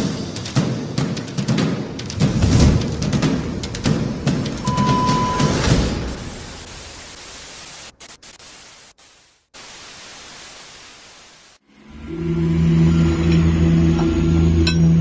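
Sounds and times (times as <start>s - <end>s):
static hiss: 4.2s - 11.6s.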